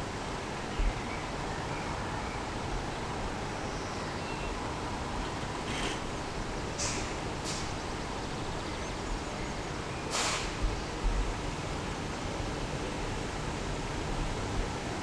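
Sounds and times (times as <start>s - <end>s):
brief rustling hisses: 6.8s - 7.8s, 10.1s - 10.6s.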